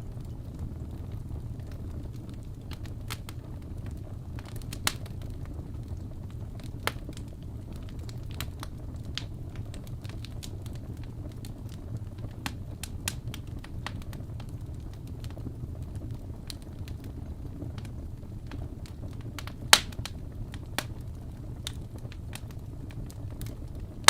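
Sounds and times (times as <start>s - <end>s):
low rumble of flames: 0.0s - 24.0s
wood fire popping and crackling: 0.0s - 24.0s.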